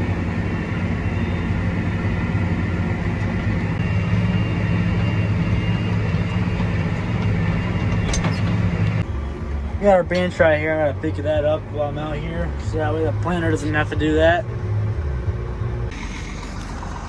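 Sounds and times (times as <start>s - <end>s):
tractor engine droning: 0.0s - 17.0s.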